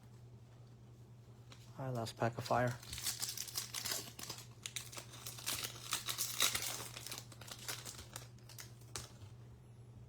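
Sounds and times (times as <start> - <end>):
wrapper being torn and crinkled: 2.4 - 9.2.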